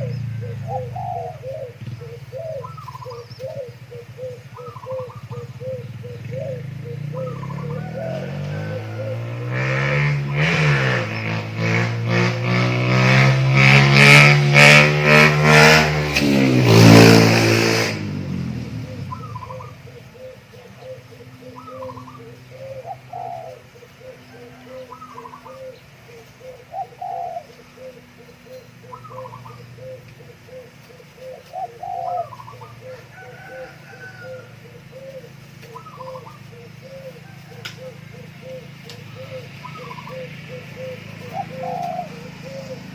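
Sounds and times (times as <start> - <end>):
doves cooing: 0.0 - 12.5, 18.4 - 42.9
loud droning rising in pitch: 6.6 - 19.3.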